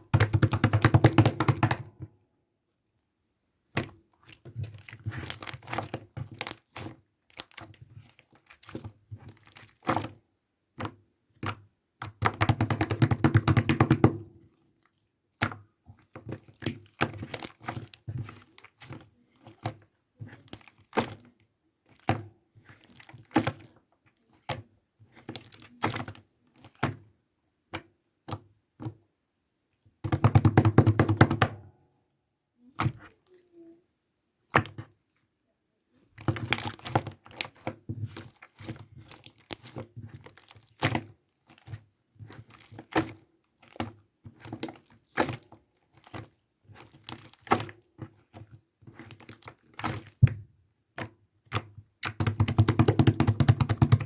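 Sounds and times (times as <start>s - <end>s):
taps and clicks: 0.1s - 1.8s, 30.0s - 31.6s, 52.1s - 54.0s.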